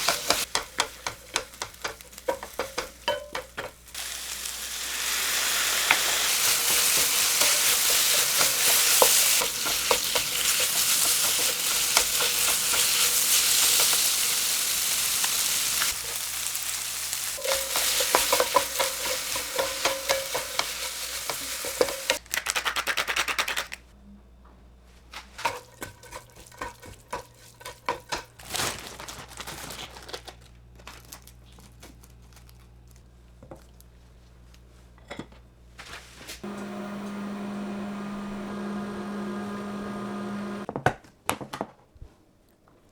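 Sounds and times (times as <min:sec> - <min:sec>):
food sizzling in a frying pan: 0:00.0 - 0:22.2.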